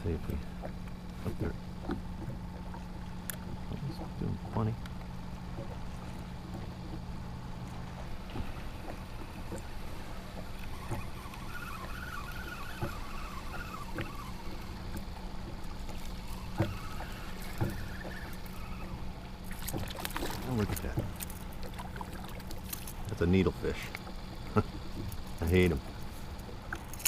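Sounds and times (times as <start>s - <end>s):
steady low hum: 0.0s - 27.0s
water lapping against kayak hull: 0.0s - 27.0s
small knocks: 14.8s - 18.4s.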